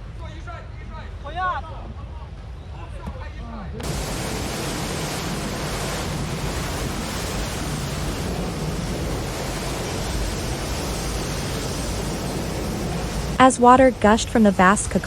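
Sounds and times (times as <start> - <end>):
water rushing: 3.8 - 15.0.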